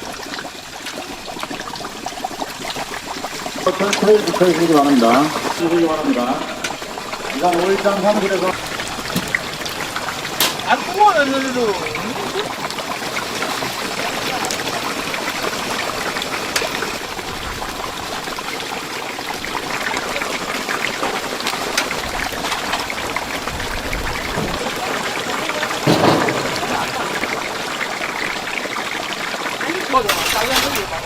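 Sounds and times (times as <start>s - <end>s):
chicken deep-frying in oil: 0.0s - 31.0s.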